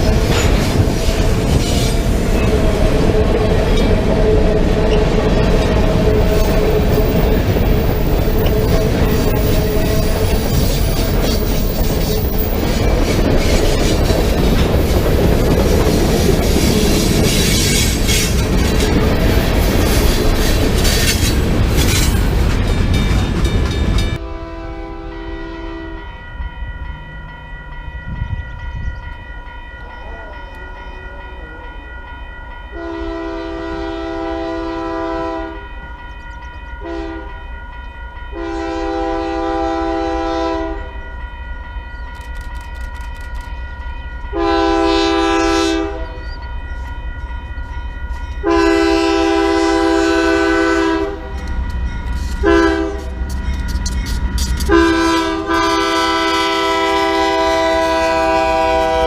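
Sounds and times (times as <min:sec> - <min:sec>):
train rumble: 0:00.0 - 0:59.0
locomotive air horn blasts: 0:24.2 - 0:26.2, 0:32.7 - 0:35.6, 0:36.8 - 0:37.4, 0:38.3 - 0:41.0, 0:44.3 - 0:46.3, 0:48.4 - 0:51.4, 0:52.3 - 0:53.2, 0:54.6 - 0:59.0.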